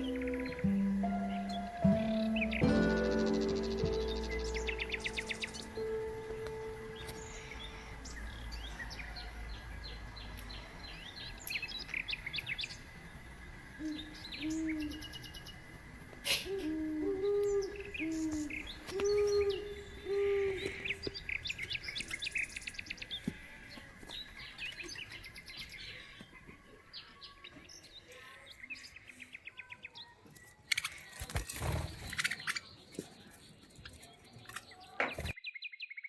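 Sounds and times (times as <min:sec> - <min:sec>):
budgerigars chirping: 0:00.0 - 0:09.4
low cooing calls: 0:00.0 - 0:09.6, 0:13.7 - 0:22.2.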